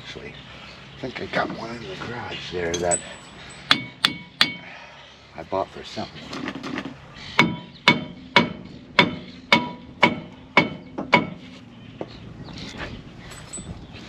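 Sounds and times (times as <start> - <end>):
hammer striking metal: 2.8 - 4.7, 7.4 - 11.4.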